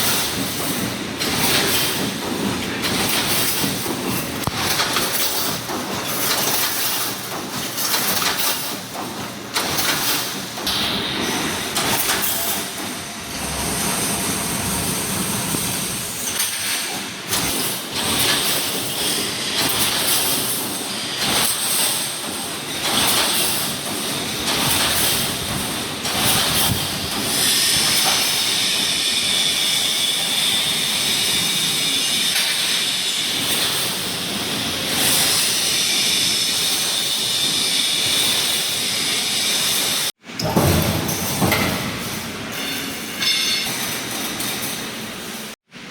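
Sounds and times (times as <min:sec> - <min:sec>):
welding machine running: 0:00.0 - 0:42.6
hiss: 0:26.2 - 0:40.1
metal clanks: 0:40.4 - 0:44.7.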